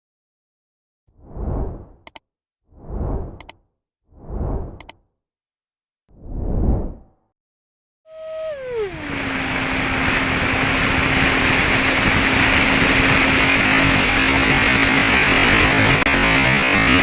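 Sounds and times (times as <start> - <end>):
electric ducted-fan motor hissing: 8.1 - 15.8.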